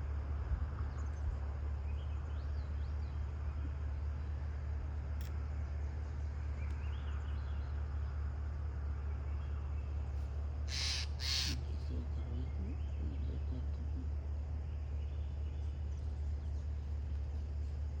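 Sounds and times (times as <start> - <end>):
steady low rumble: 8.7 - 18.0
bird harsh calls: 10.7 - 11.9.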